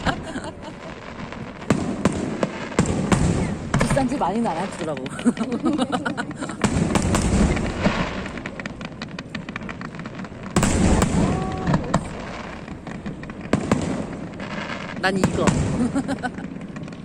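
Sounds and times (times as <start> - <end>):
fireworks bursting: 0.0 - 17.0
fireworks crackling: 0.0 - 17.0.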